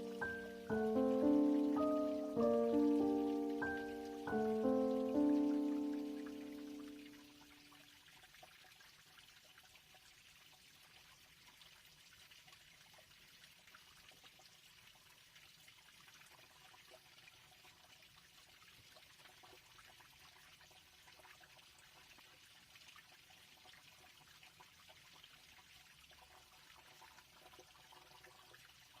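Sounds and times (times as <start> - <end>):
faint hiss with crackles: 0.0 - 7.4.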